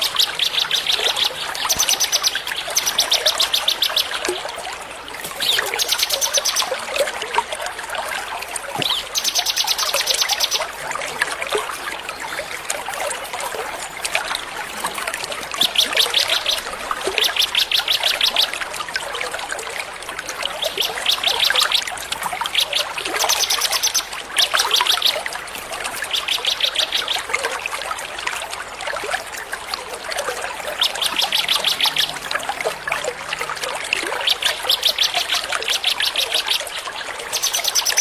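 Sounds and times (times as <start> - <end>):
songbirds singing: 0.0 - 4.5, 5.2 - 6.8, 8.8 - 10.7, 15.5 - 18.6, 20.5 - 25.2, 25.8 - 27.4, 30.6 - 33.1, 33.8 - 38.0
trickling water: 0.0 - 38.0.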